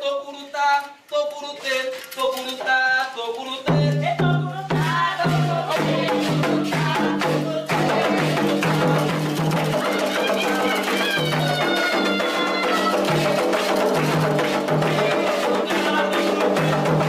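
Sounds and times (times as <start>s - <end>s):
voices singing a chant: 0.0s - 17.0s
drums and rattle beat: 3.5s - 17.0s.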